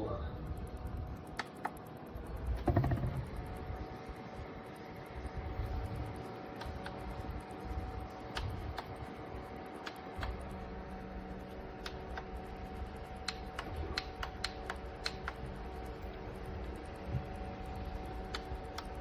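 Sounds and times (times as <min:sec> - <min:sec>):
small fan motor humming: 0:00.0 - 0:19.0
sharp clicks and taps: 0:01.2 - 0:03.2, 0:08.0 - 0:09.1, 0:09.8 - 0:10.6, 0:11.4 - 0:16.4, 0:17.0 - 0:19.0.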